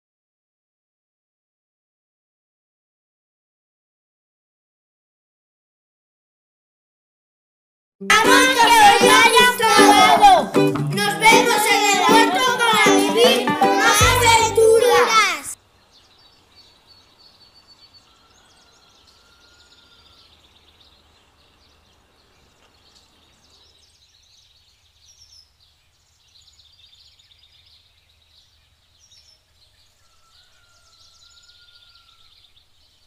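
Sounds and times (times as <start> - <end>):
low background noise: 8.1 - 33.0
birds chirping: 8.2 - 33.0
whistled bird notes: 17.3 - 21.0.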